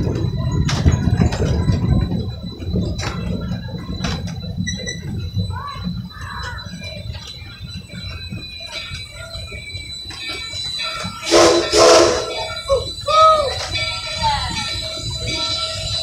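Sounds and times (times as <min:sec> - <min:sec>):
sharp clacks of wheels: 0:00.0 - 0:11.8
train rumbling on track: 0:00.0 - 0:16.0.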